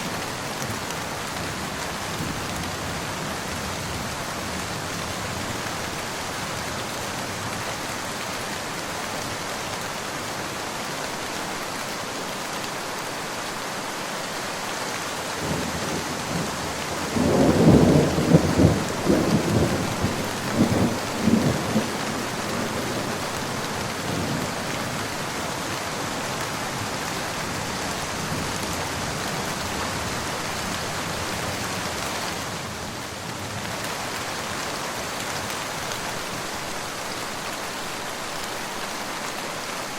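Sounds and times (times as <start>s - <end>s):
steady rain: 0.0s - 39.9s
thunder rolling: 15.4s - 23.0s.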